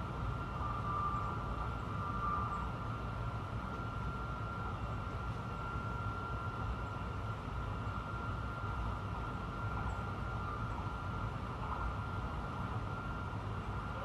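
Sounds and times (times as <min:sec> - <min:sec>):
constant high-pitched tone: 0:00.0 - 0:14.0.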